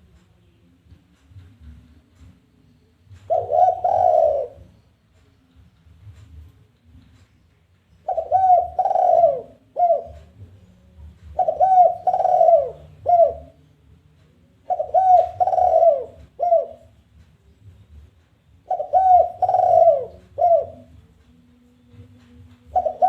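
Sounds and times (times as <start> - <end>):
dove cooing: 3.1 - 4.8, 8.0 - 10.6, 11.2 - 13.6, 14.6 - 17.0, 18.6 - 21.1, 22.6 - 23.0.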